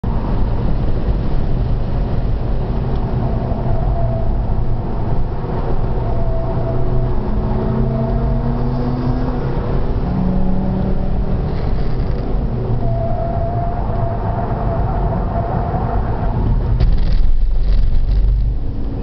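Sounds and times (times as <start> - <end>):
car engine running hard: 0.0 - 19.0
road and wind noise: 0.0 - 19.0.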